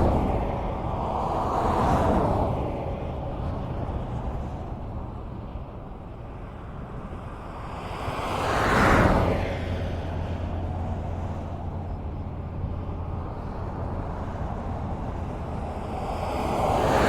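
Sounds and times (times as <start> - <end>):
road noise with low hum: 0.0 - 17.0
vehicle passing: 7.8 - 17.0.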